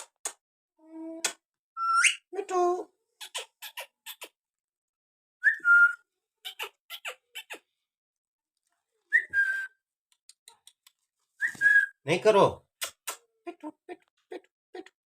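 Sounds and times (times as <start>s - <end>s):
parrot whistled calls: 1.8s - 2.2s, 5.4s - 6.0s, 9.2s - 9.8s.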